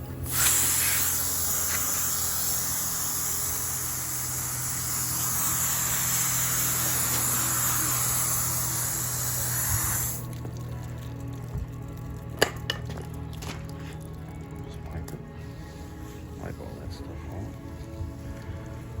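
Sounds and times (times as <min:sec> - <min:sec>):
hose spraying water: 0:00.0 - 0:10.6.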